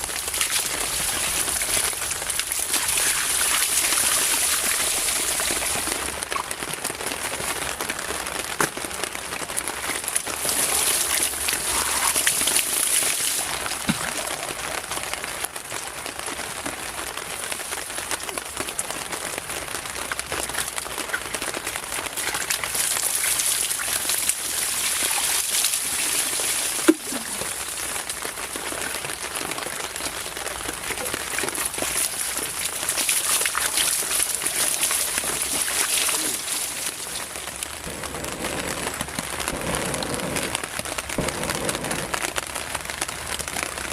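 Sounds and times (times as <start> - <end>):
steady rain falling: 0.0 - 43.9.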